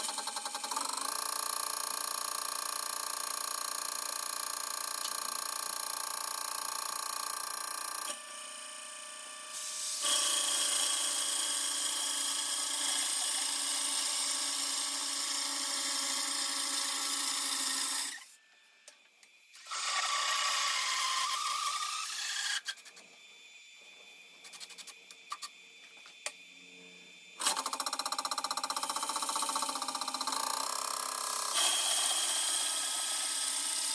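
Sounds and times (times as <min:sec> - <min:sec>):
cutter shaving wood: 0:09.2 - 0:18.3, 0:27.4 - 0:33.9.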